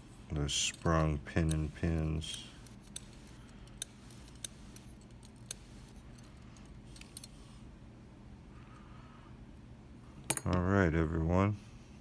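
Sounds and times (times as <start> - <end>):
low steady hum: 0.0 - 12.0
small metal parts clicking: 0.6 - 7.4.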